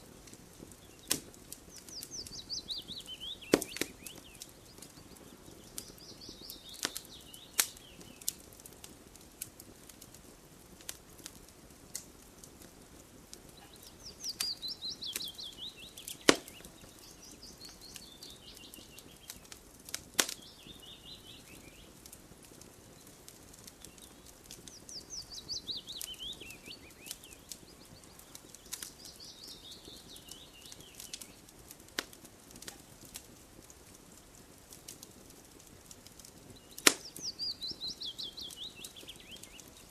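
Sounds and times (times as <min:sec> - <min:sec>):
campfire crackling and popping: 0:00.0 - 0:39.9
bird singing falling trill: 0:01.8 - 0:08.3, 0:13.6 - 0:19.5, 0:20.4 - 0:21.9, 0:23.8 - 0:31.4, 0:36.5 - 0:39.9.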